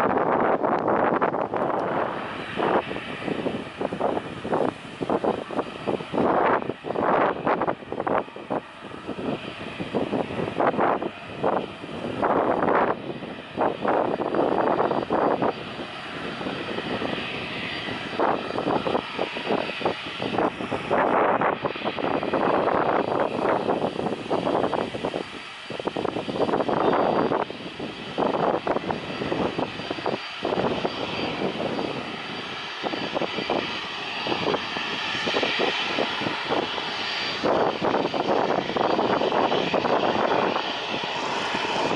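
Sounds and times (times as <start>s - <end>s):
airliner engines running: 0.0s - 41.9s
wind gusting on microphone: 0.0s - 41.9s
faint high whine: 22.2s - 41.9s.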